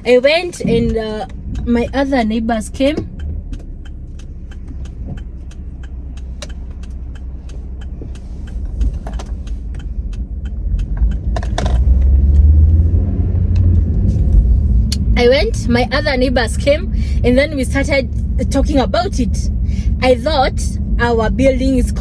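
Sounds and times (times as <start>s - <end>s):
car engine and road rumble: 0.0s - 22.0s
light ticks: 0.2s - 12.5s.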